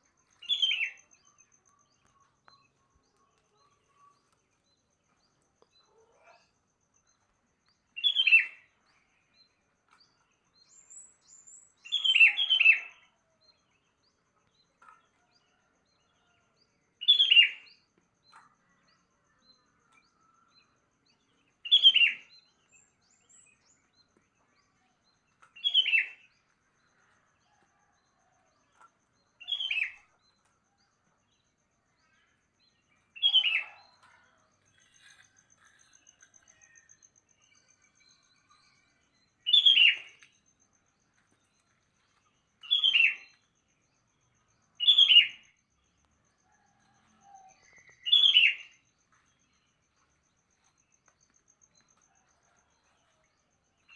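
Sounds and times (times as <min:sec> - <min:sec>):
bird singing falling phrases: 0:00.0 - 0:13.6, 0:21.2 - 0:27.9, 0:28.7 - 0:30.8, 0:31.4 - 0:45.6, 0:46.6 - 0:52.6.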